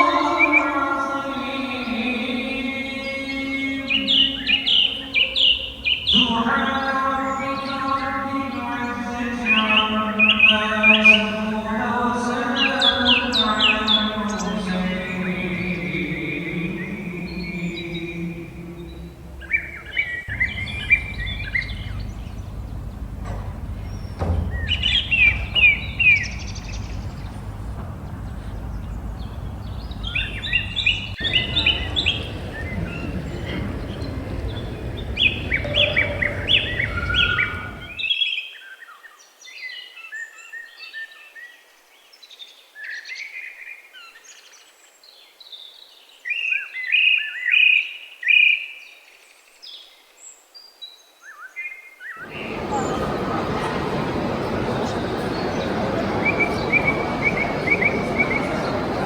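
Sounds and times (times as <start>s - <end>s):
songbirds chirping: 0.0s - 38.0s, 52.2s - 59.0s.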